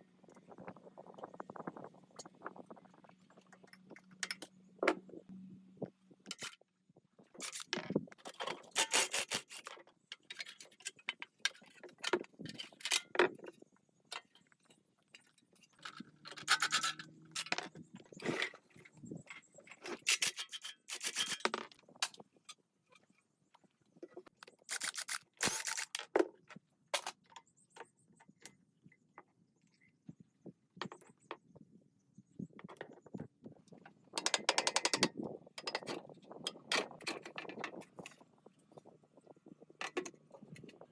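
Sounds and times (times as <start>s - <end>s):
scraping and rubbing on metal: 8.4s - 9.8s, 15.7s - 18.7s, 19.7s - 21.6s.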